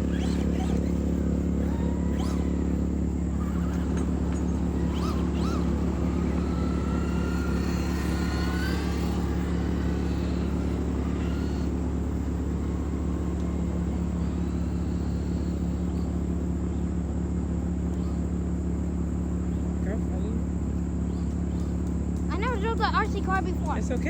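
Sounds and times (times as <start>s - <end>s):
steady low drone: 0.0s - 22.2s
rc car motor whining: 0.0s - 24.0s.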